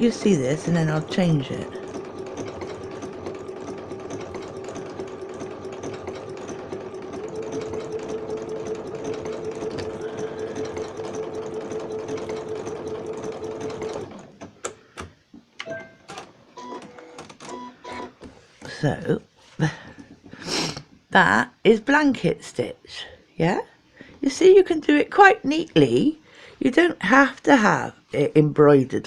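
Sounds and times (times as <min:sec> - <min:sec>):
sewing machine running: 0:00.0 - 0:14.5.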